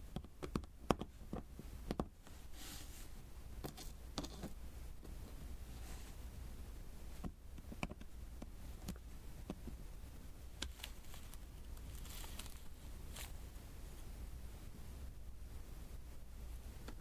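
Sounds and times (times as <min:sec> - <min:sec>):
soft sticky rustle: 0:10.5 - 0:14.1.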